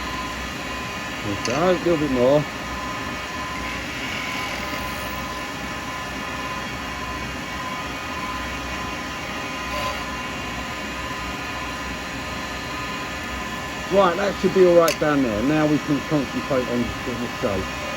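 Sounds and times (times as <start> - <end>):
lathe running: 0.0 - 17.9
cutter shaving acrylic: 1.1 - 2.5, 3.4 - 5.3, 13.9 - 17.9.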